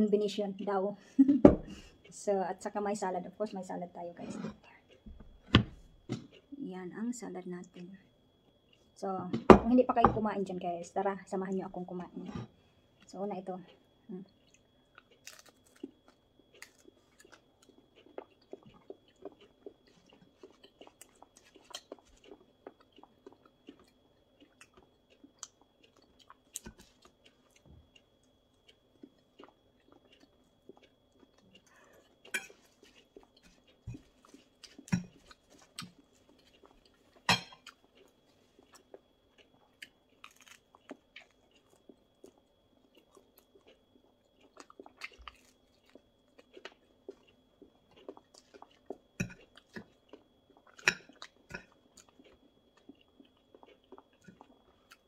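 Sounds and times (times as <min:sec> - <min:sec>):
chewing and crunching: 0:01.7 - 0:06.6, 0:07.7 - 0:09.0, 0:11.3 - 0:55.0.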